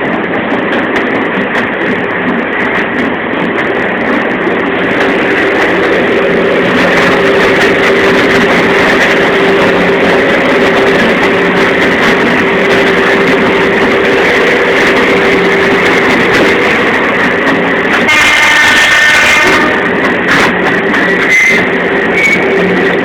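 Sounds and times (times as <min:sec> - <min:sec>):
train running: 0:00.0 - 0:23.0
train horn: 0:06.2 - 0:22.7.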